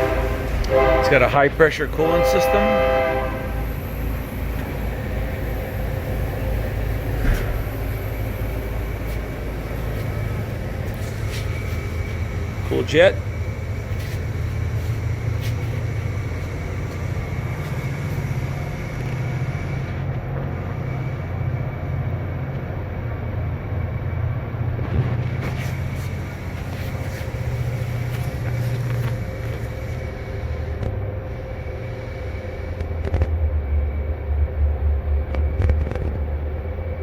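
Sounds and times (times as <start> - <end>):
faint high whine: 0.0 - 37.0
low machinery hum: 0.0 - 37.0.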